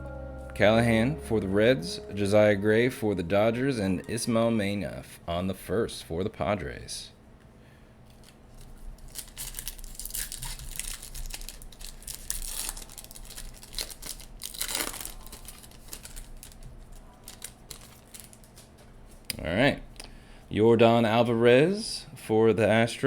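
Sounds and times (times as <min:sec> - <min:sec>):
wrapper tearing and crinkling: 0:08.1 - 0:18.7.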